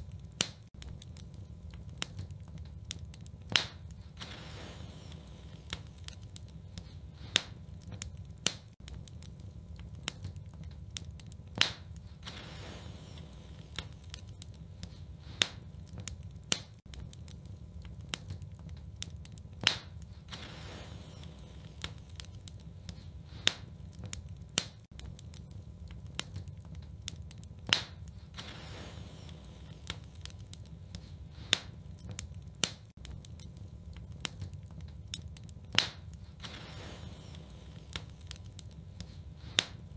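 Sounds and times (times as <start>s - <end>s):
wood fire crackling: 0.0s - 39.9s
sharp pop from fire: 2.0s - 9.0s, 10.0s - 17.0s, 18.1s - 25.1s, 27.3s - 33.2s, 35.1s - 39.9s.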